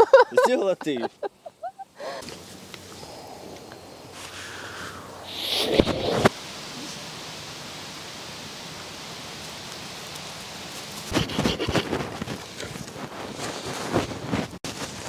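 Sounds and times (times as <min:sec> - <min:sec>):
steady hiss: 0:00.1 - 0:13.7
rustles and crunches in sand: 0:09.4 - 0:15.0.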